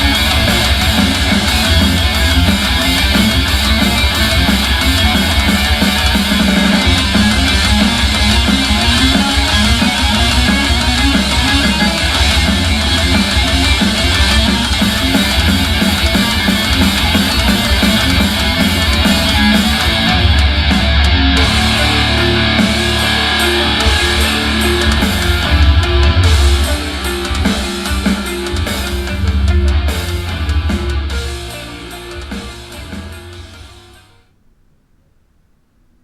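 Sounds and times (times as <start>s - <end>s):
heavy metal rock music: 0.0s - 34.3s.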